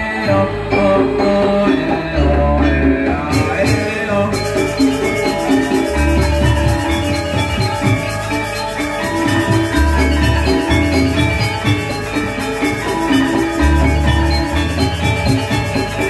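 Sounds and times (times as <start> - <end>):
drums: 0.0 - 16.0
ringing metallophones: 0.0 - 16.0.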